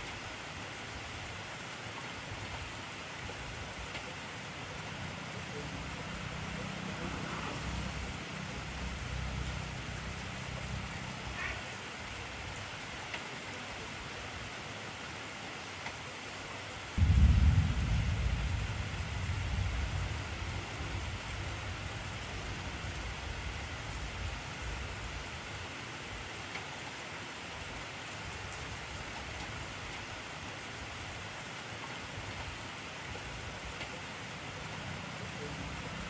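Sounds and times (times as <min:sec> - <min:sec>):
heavy rain hissing: 0:00.0 - 0:15.6, 0:16.8 - 0:36.0
low rumble of thunder: 0:17.0 - 0:24.9.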